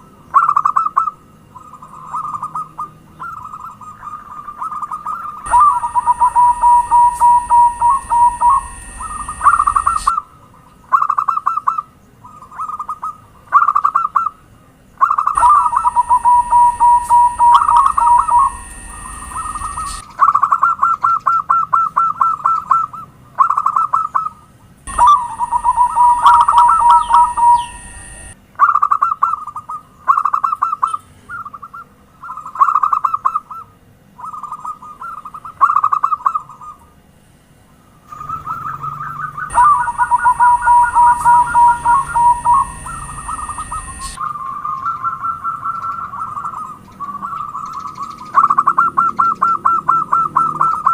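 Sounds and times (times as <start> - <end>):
doves cooing: 0.4 - 10.2, 15.0 - 20.0, 24.9 - 28.4, 38.1 - 50.9
steady high hiss: 5.5 - 10.2, 15.3 - 20.0, 24.9 - 28.4, 39.5 - 44.2.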